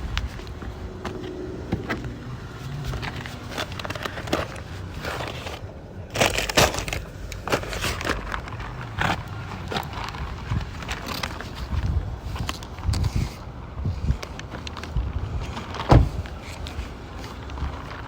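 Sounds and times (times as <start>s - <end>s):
takeout bags rustling: 0.0s - 13.4s.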